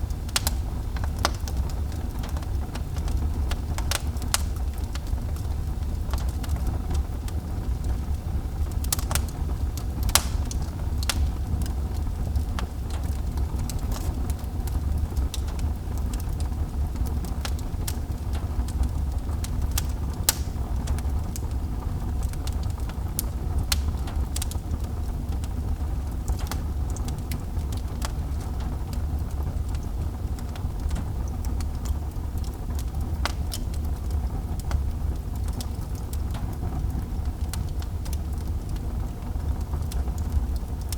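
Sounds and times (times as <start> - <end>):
fire low rumble: 0.0 - 40.9
wood fire crackling and popping: 0.0 - 40.9.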